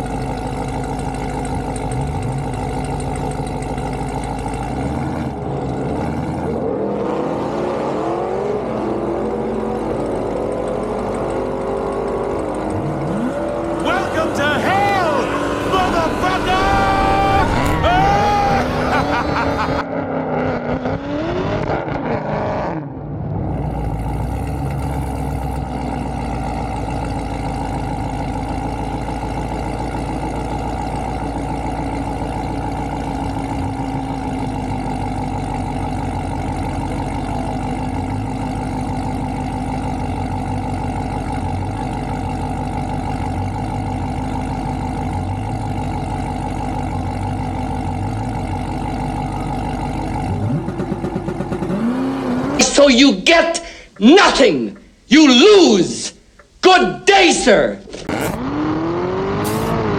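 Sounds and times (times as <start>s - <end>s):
car engine running steadily: 0.0s - 54.1s, 56.1s - 56.6s, 57.8s - 59.9s.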